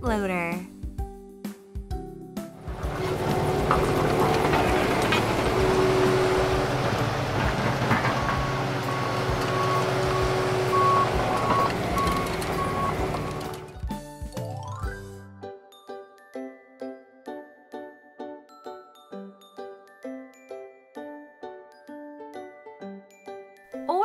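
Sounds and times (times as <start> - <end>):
diesel engine running: 2.6 - 13.8
reversing alarm beeps: 8.4 - 13.6.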